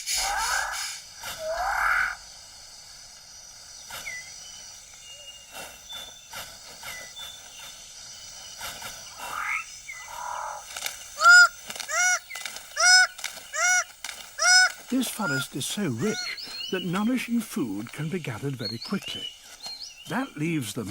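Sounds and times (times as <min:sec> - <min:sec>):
animal calls: 0:00.0 - 0:02.3, 0:08.7 - 0:16.6
loud arched animal calls: 0:00.0 - 0:02.3, 0:09.1 - 0:16.4
insect hum: 0:00.0 - 0:20.9.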